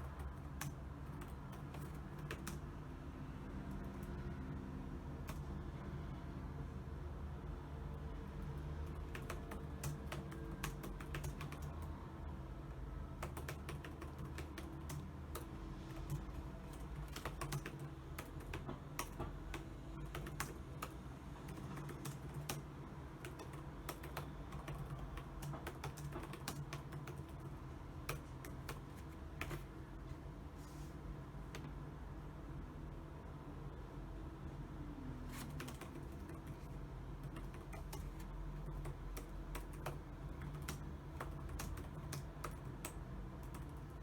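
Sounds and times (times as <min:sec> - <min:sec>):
keyboard typing clicks: 0:00.0 - 0:02.6, 0:08.8 - 0:11.9, 0:13.2 - 0:29.7, 0:35.3 - 0:44.0.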